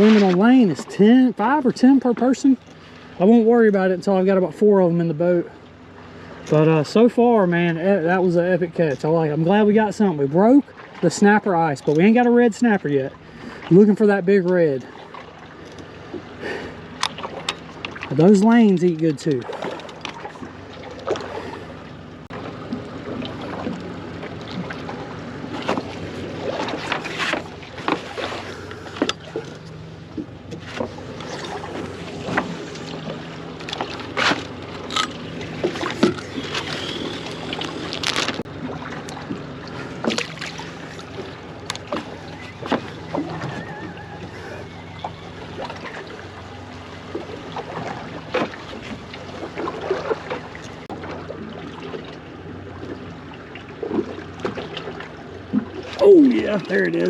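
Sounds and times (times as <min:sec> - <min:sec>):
knocks and splashes: 0:00.0 - 0:03.4, 0:06.0 - 0:57.0
water slapping against boat hull: 0:00.0 - 0:05.0, 0:05.9 - 0:57.0
steady low hum: 0:00.0 - 0:57.0.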